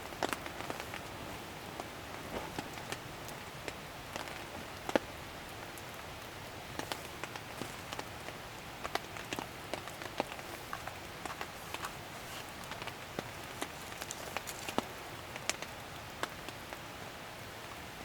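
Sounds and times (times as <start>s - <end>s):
rain hissing: 0.0s - 18.0s
raindrops ticking on a surface: 0.0s - 18.0s.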